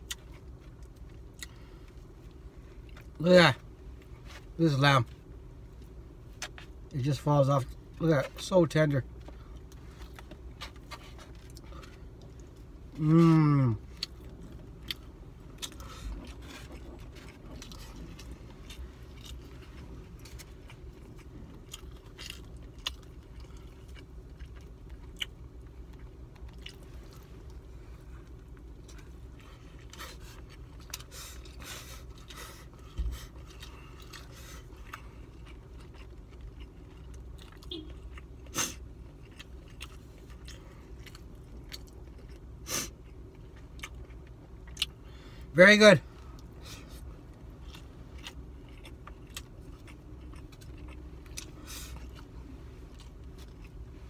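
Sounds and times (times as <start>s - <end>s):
person chewing: 0.0s - 3.2s, 9.1s - 45.2s, 46.2s - 54.0s
steady low hum: 0.0s - 54.0s.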